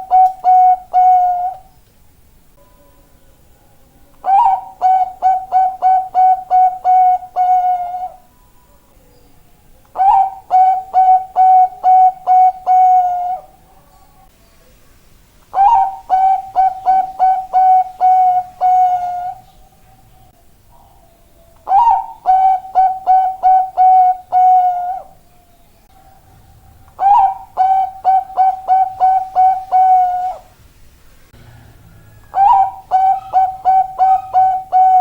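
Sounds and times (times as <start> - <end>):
dove cooing: 0.0 - 1.7, 4.2 - 8.3, 9.9 - 13.9, 15.5 - 19.5, 20.7 - 25.2, 25.9 - 30.5, 31.4 - 35.0.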